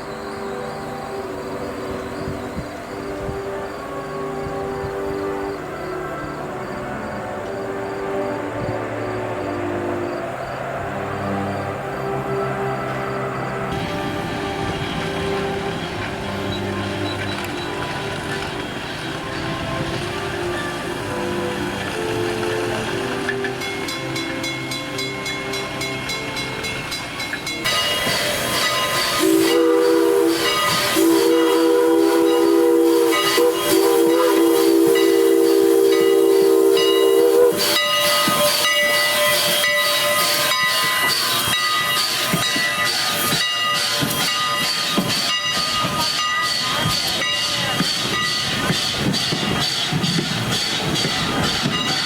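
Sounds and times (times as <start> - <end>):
chime steam whistle: 0.0 - 52.0
steam train running: 0.0 - 52.0
steam hissing: 13.4 - 52.0.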